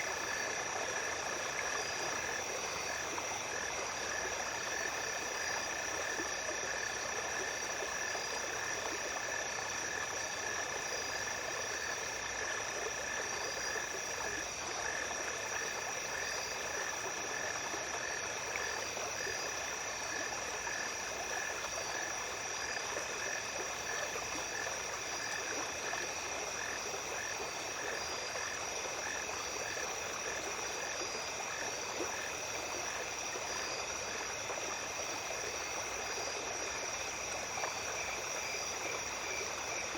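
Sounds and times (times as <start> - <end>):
small stream flowing: 0.0 - 39.9.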